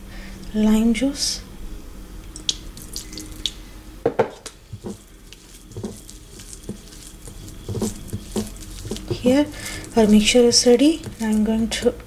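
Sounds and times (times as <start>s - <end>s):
spoon tapping and scraping bowl: 4.2s - 11.8s
spoon stirring wet paste: 4.6s - 12.0s.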